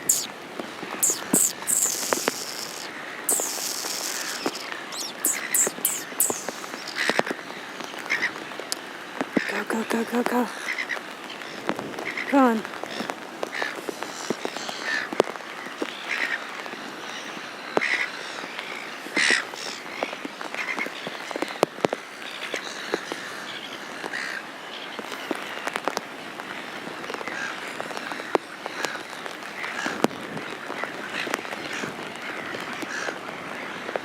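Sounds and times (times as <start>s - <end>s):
gulls calling: 0.0s - 0.3s, 1.0s - 7.1s
sharp clicks: 0.1s - 0.3s, 1.0s - 7.0s.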